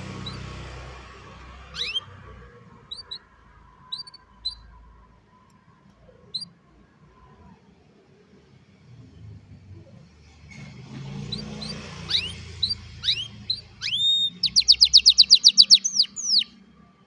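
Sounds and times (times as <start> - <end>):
canary chirping: 0.0 - 4.9, 6.1 - 6.6, 10.4 - 16.6.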